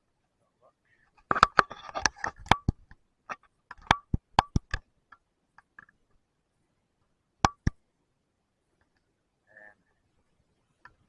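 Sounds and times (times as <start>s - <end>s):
sharp clicks and taps: 1.2s - 6.1s, 7.4s - 7.8s.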